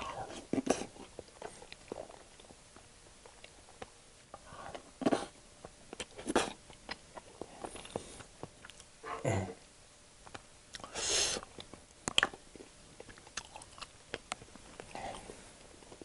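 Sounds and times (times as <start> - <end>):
chewing and wet mouth sounds: 0.3 - 8.9, 10.2 - 16.0
mouth smacks: 10.3 - 14.4.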